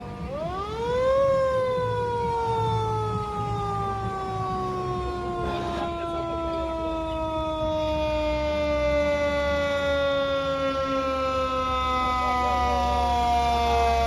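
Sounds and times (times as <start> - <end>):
low engine rumble: 0.0 - 14.0
fire truck siren winding: 0.2 - 14.0.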